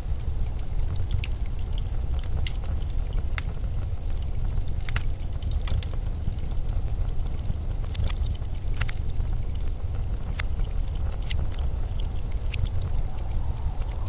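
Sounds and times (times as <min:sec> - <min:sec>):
sharp crackles and ticks: 0:00.0 - 0:14.0
blizzard wind rumbling: 0:09.0 - 0:14.0.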